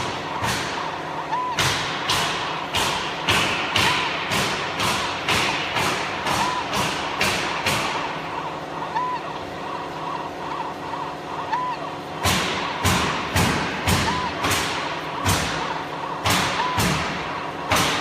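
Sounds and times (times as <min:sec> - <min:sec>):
machine knocking: 0:00.0 - 0:18.0
short electronic beep: 0:14.1 - 0:14.4.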